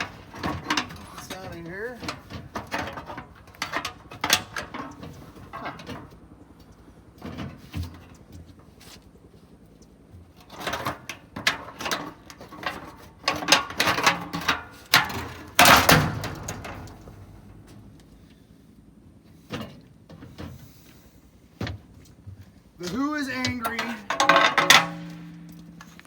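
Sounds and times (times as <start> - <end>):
metal clanks and scrapes: 0.0 - 6.1, 10.4 - 17.8, 22.9 - 26.0.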